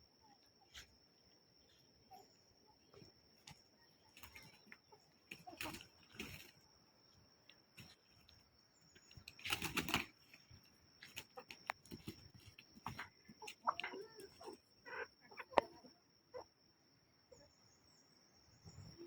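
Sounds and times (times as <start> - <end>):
wing flapping and scuffling: 0.7 - 15.9.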